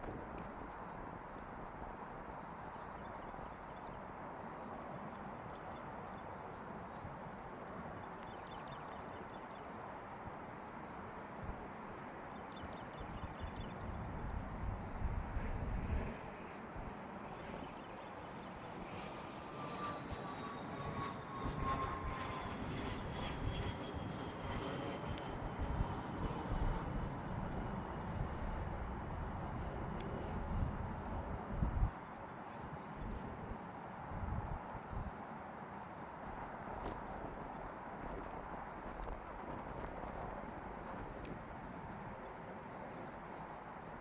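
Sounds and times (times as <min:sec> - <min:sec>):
distant airplane engine rumble: 0:12.2 - 0:44.0.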